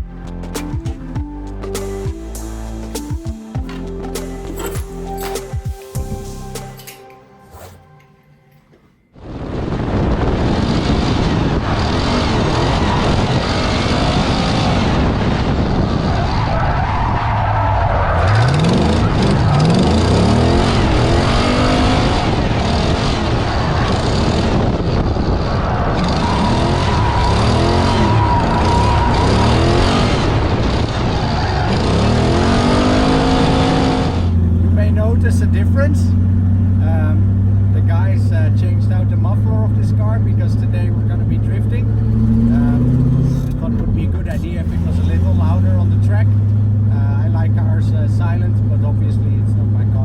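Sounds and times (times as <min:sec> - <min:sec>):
car engine revving: 0:10.4 - 0:50.0.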